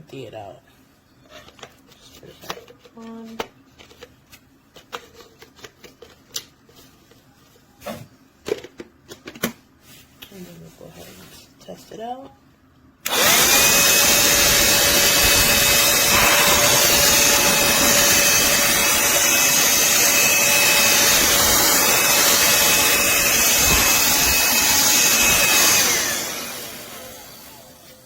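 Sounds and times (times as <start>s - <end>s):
handheld vacuum running: 13.0s - 28.0s.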